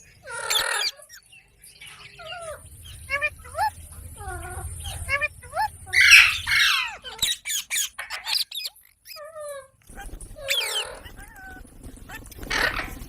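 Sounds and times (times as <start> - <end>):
parrot screeching and chirping: 0.2 - 9.7, 10.4 - 13.0.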